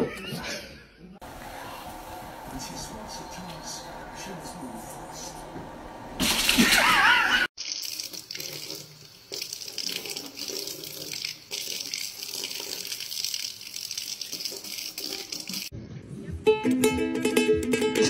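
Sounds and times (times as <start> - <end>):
faucet splashing into steel sink: 6.2 - 15.7.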